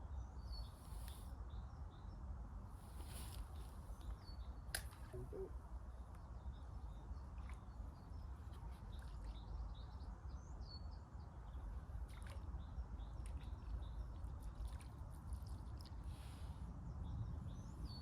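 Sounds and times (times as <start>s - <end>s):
small birds chirping: 3.4s - 18.0s.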